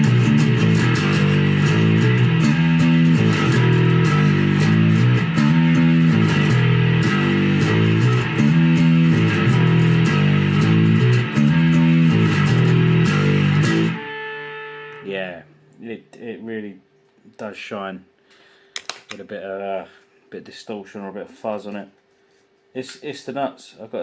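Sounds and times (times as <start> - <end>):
fuzzed electric bass riff: 0.0 - 15.5.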